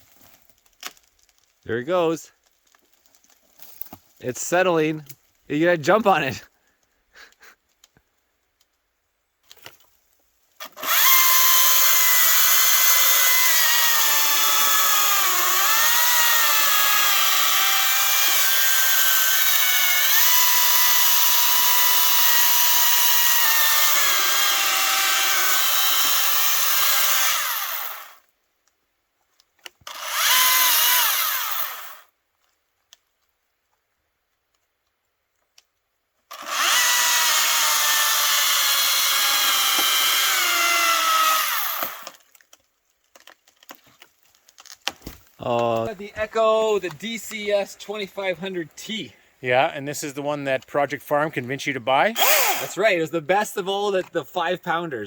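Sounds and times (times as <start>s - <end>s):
chainsaw cutting wood: 10.6s - 28.3s, 29.6s - 32.1s, 36.3s - 42.6s, 52.1s - 53.0s.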